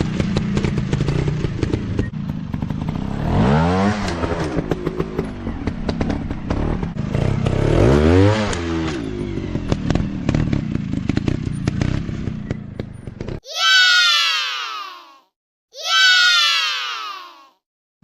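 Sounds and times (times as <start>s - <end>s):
dirt bike engine revving: 0.2s - 12.6s
high falling shriek: 13.5s - 15.2s, 15.8s - 17.5s.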